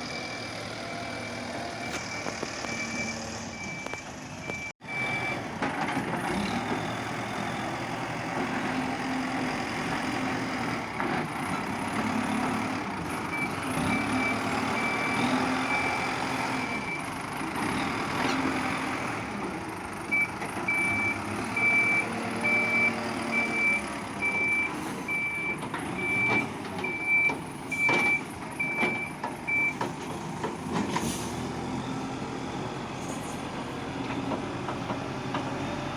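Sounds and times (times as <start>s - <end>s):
reversing alarm beeping: 0.0s - 5.4s, 13.3s - 17.1s, 20.1s - 29.8s
diesel engine under load: 0.0s - 35.9s.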